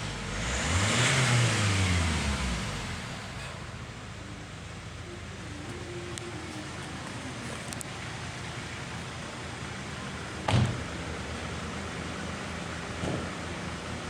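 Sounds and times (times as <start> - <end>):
car engine idling: 0.0 - 14.0
loud thump: 13.0 - 13.3.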